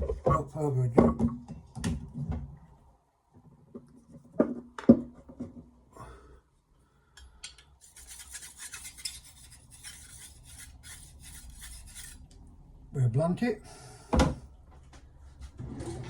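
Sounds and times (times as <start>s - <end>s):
knife scraping on whetstone: 7.8s - 12.3s.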